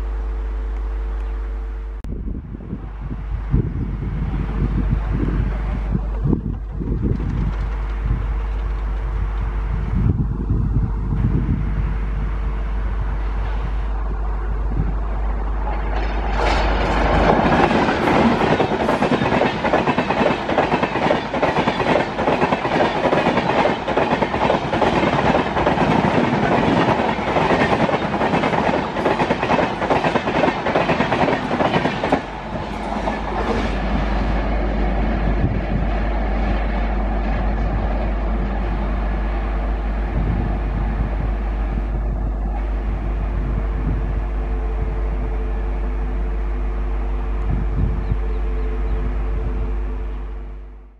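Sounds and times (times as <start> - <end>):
electric locomotive passing: 0.0 - 50.9
rolling rumble: 2.1 - 50.8
train wheels clickety-clack: 6.1 - 9.1, 15.7 - 34.0.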